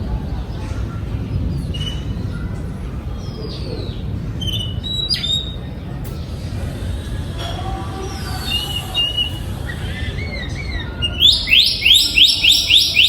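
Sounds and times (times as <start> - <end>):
steady low rumble: 0.0 - 12.2
bird whistling song: 8.4 - 13.0.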